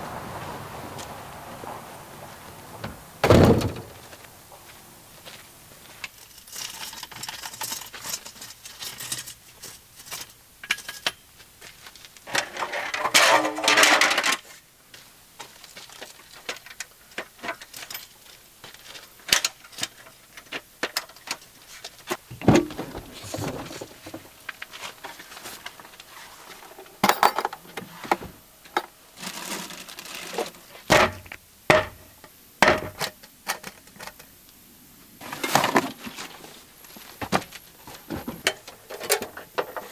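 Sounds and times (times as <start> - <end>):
camping gear knocking and clinking: 26.6 - 29.4, 30.2 - 34.2, 35.2 - 39.9.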